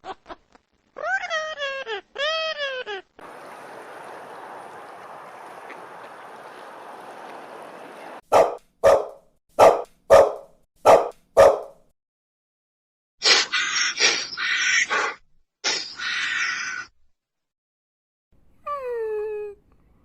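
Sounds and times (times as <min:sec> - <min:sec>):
dog barking: 0:08.3 - 0:11.8.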